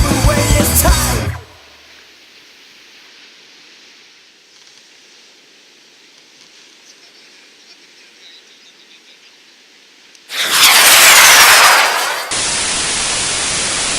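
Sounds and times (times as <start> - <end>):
faint steady hiss: 1.2 - 10.3
falling whistle: 10.3 - 12.6
loud noise burst: 10.3 - 13.9
steady static: 10.3 - 13.9.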